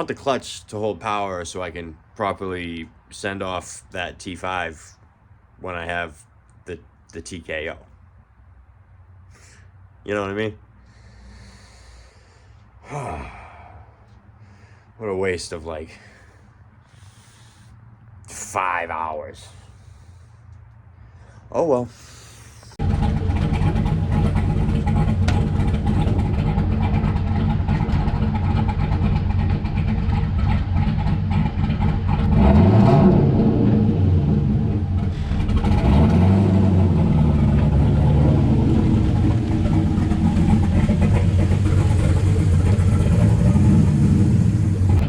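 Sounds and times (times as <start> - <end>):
car engine revving: 22.8 - 45.0.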